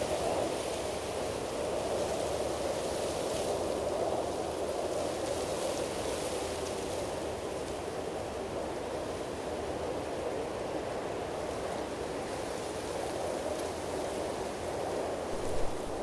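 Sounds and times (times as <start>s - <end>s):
low bump: 15.3s - 16.0s
rushing water: 15.3s - 16.0s.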